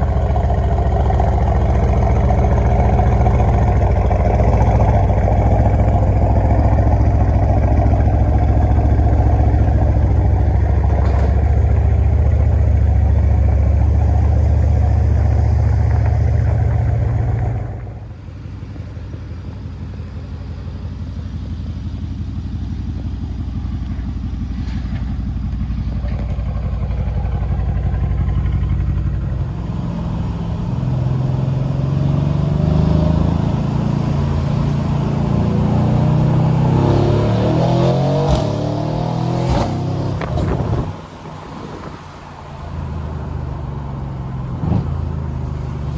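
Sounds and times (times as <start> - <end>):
car engine running deep: 0.0 - 45.9.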